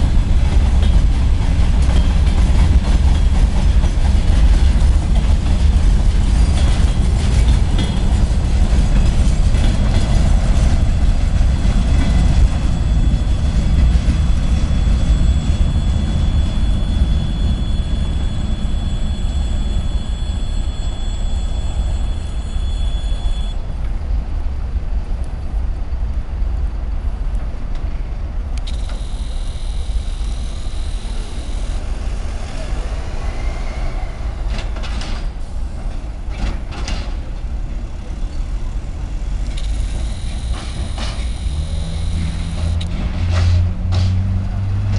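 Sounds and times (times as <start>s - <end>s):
locomotive low rumble: 0.0s - 44.9s
high wheel squeal: 11.4s - 23.6s, 28.7s - 34.7s, 39.6s - 42.8s
wheel clicks on track: 28.6s - 31.8s, 39.5s - 43.0s.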